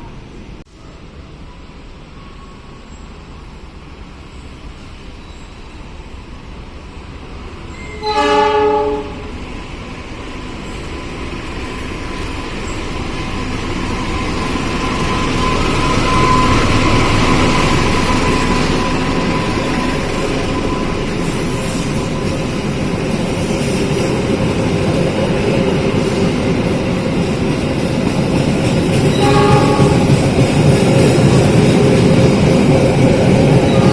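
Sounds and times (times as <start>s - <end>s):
train rumble and rail noise: 0.0s - 33.9s
train horn: 7.7s - 9.4s, 29.1s - 30.4s, 33.7s - 33.9s.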